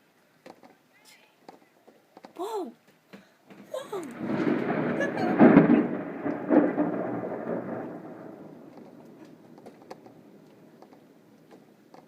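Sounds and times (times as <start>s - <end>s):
thunder rumbling: 3.6s - 12.0s.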